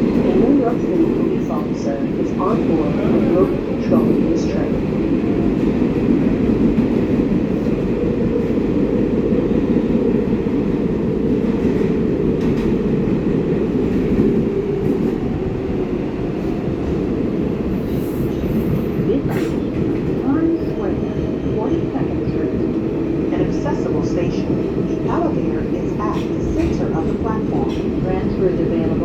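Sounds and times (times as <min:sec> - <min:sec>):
subway wheels rumbling on rail: 0:00.0 - 0:29.0.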